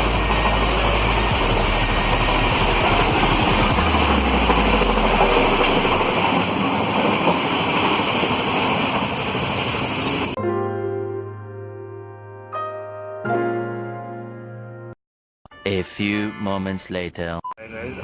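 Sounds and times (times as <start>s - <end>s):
soft piano music: 0.0s - 2.9s, 10.4s - 15.0s
passenger train rushing: 0.0s - 10.4s.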